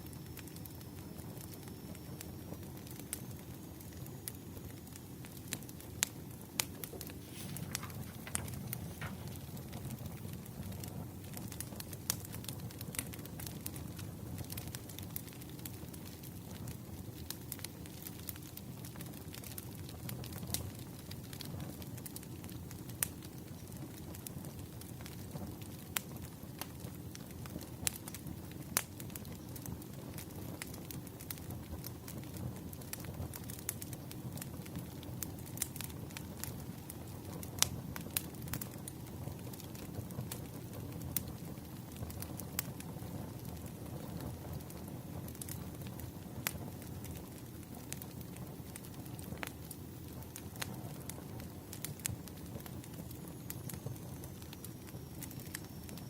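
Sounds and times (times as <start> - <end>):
low rumble of flames: 0.0 - 56.0
wood fire crackling: 0.0 - 56.0.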